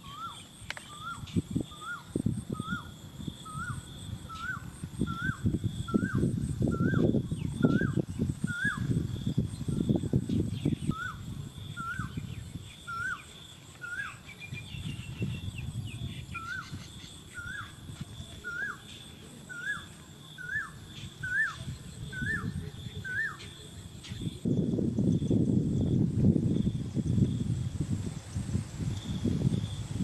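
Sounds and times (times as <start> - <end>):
bird chirping: 9.6 - 24.4.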